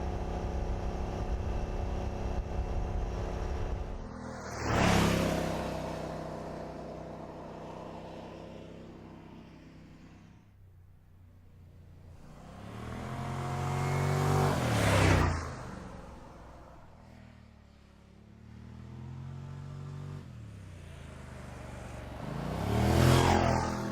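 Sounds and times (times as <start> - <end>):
car engine passing by: 3.1 - 6.8, 12.2 - 17.4, 18.4 - 23.9.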